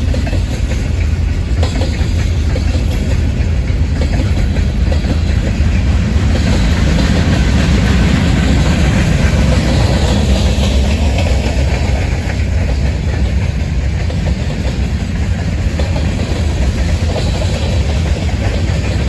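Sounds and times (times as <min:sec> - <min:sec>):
heavy train rumble: 0:00.0 - 0:19.0
wheels clicking over rail joints: 0:00.0 - 0:19.0.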